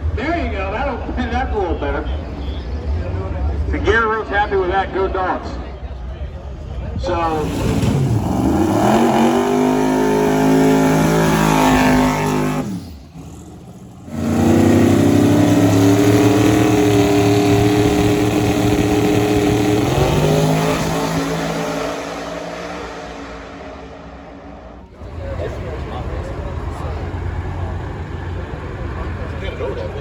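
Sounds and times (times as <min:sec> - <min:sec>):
race car engine at high revs: 0:07.2 - 0:30.0.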